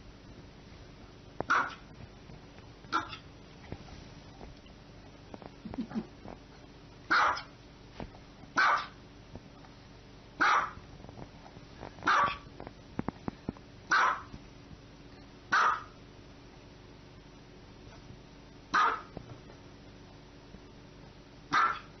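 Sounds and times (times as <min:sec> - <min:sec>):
small dog barking: 0:01.5 - 0:01.9, 0:02.9 - 0:03.2, 0:07.1 - 0:07.5, 0:08.6 - 0:09.0, 0:10.4 - 0:10.8, 0:12.0 - 0:12.5, 0:13.9 - 0:14.3, 0:15.5 - 0:16.0, 0:18.7 - 0:19.2, 0:21.5 - 0:22.0.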